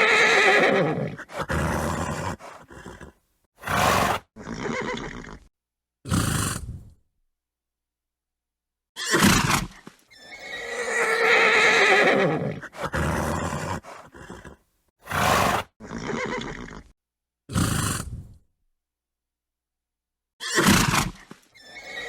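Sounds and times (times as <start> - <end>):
horse neighing: 0.0 - 5.5, 10.2 - 16.9, 20.4 - 22.0
horse snorting: 0.0 - 5.5, 6.1 - 6.9, 9.2 - 16.9, 17.5 - 18.4.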